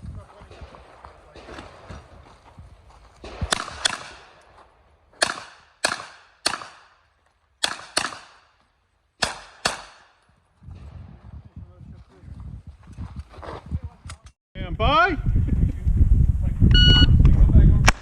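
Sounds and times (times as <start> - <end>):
rifle shots with echo: 0.3 - 2.3, 3.2 - 8.6, 9.2 - 10.2.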